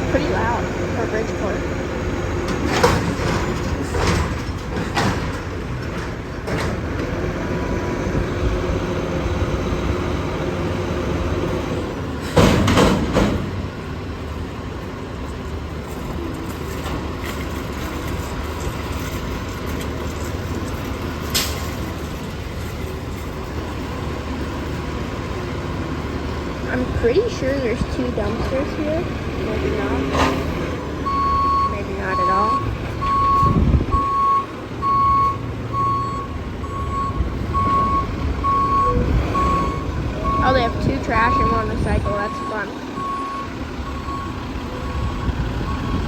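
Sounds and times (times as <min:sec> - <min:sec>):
garbage truck diesel engine running: 0:00.0 - 0:46.0
loud clattering crash: 0:02.4 - 0:07.0, 0:12.2 - 0:13.7.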